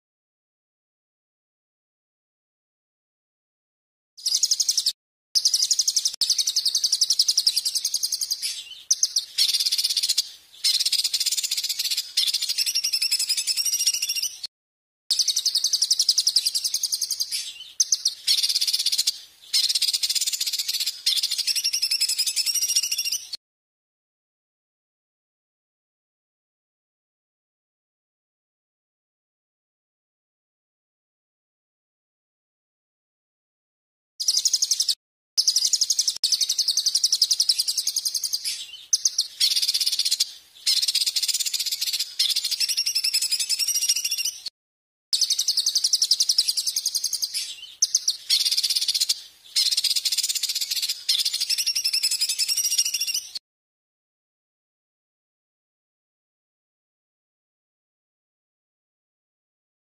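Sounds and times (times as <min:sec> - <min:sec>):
songbird trilling: 0:04.2 - 0:14.4, 0:15.1 - 0:23.4, 0:34.2 - 0:44.5, 0:45.2 - 0:53.4.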